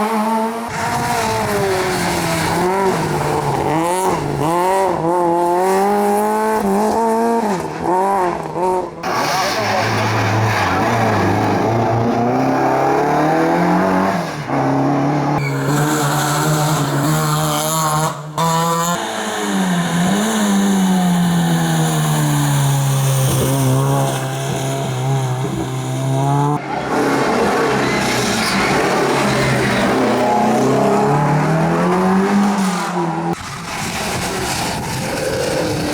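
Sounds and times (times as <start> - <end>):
rally car engines revving: 0.0 - 35.9.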